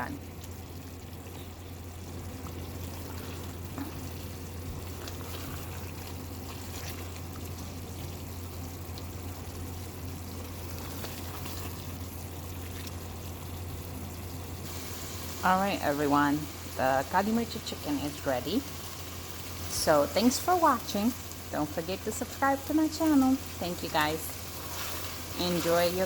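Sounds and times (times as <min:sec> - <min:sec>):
chicken sizzling in a pan: 0:00.0 - 0:26.0
constant low hum: 0:00.0 - 0:26.0
faint crackles: 0:00.1 - 0:15.8.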